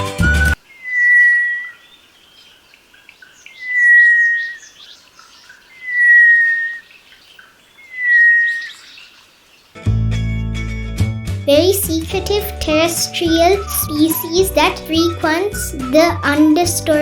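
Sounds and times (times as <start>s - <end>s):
bird whistling: 0.3s - 9.3s, 13.4s - 16.6s
faint bird chirps: 0.6s - 9.8s.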